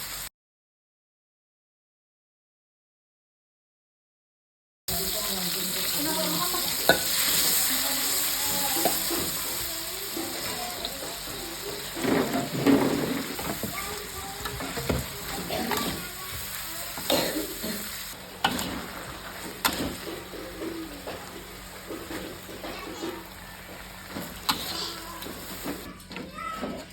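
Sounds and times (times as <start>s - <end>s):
vegetables sizzling in hot oil: 0.0s - 0.3s, 4.9s - 25.9s
spatula scraping a pan: 6.0s - 26.9s.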